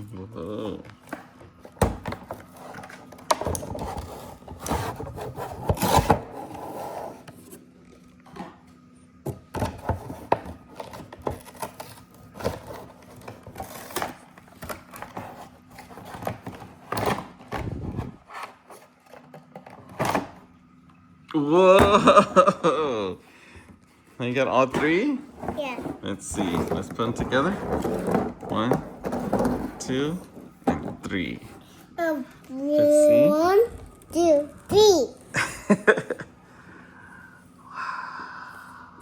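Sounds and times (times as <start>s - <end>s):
packaging rustling and scraping: 9.6s - 20.3s, 25.4s - 30.2s.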